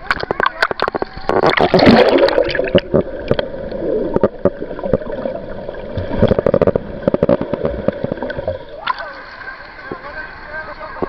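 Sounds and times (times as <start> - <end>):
sea water sloshing and gurgling: 0.0 - 10.2.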